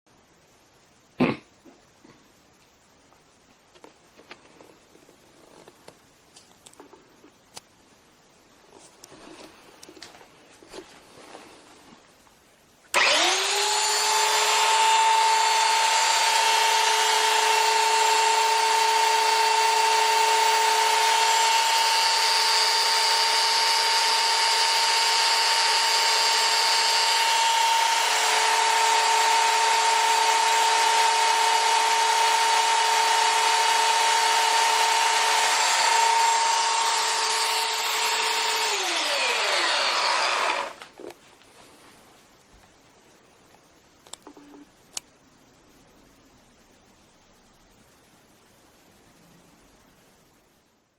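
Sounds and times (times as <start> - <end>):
belt sander whining: 12.9 - 40.9.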